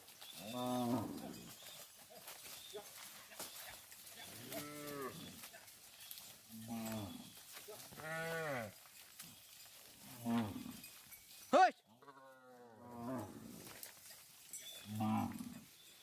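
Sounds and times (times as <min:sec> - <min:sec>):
cattle mooing: 0:00.4 - 0:01.4, 0:04.3 - 0:05.2, 0:06.5 - 0:07.3, 0:08.0 - 0:08.7, 0:14.8 - 0:15.6.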